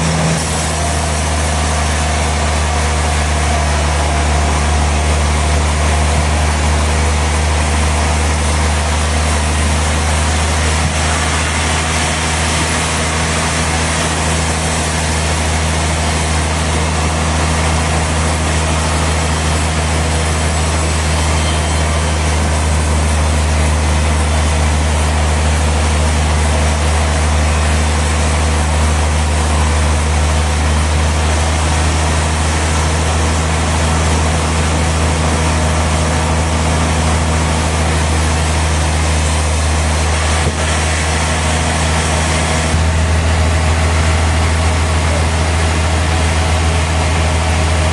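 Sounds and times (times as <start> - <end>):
sawmill machinery drone: 0.0 - 47.9.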